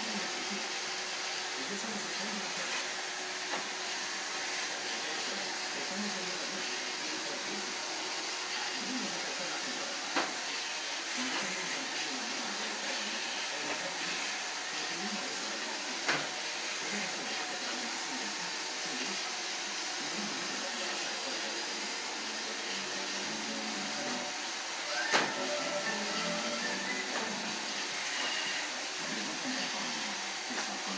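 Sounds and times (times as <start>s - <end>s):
robot vacuum whirring: 24.8s - 30.9s.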